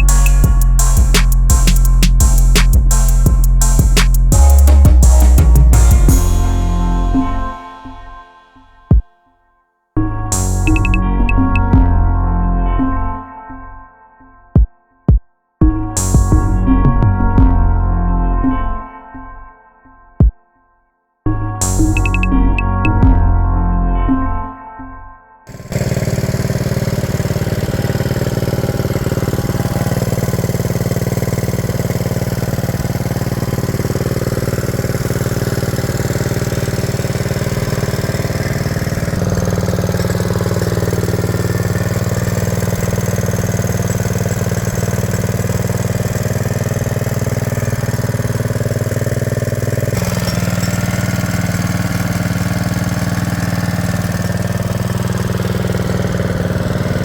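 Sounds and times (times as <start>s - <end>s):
small engine idling: 0.0s - 7.7s, 25.5s - 57.0s.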